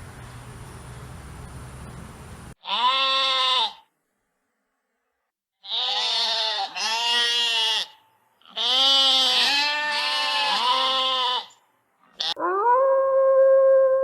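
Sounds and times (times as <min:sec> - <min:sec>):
goat bleating: 0:02.6 - 0:03.9, 0:05.6 - 0:12.4.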